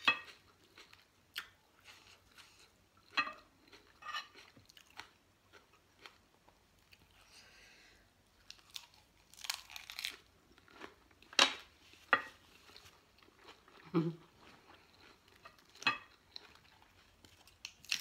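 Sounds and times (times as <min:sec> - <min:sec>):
crunching lettuce wrap: 0:08.5 - 0:11.0, 0:17.2 - 0:18.0.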